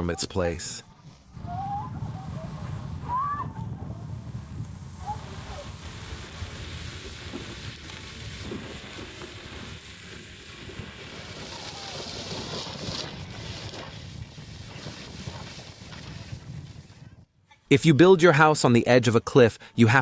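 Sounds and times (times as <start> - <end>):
landslide rumbling: 0.0 - 17.2
hiss of sliding earth and debris: 1.0 - 17.1.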